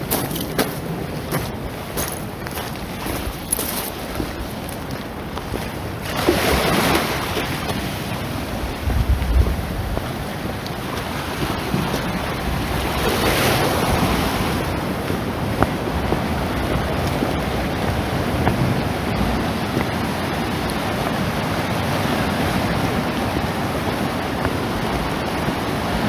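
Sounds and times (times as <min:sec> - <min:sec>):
sea waves washing onto shore: 0:00.0 - 0:26.0
wind buffeting microphone: 0:00.0 - 0:26.0.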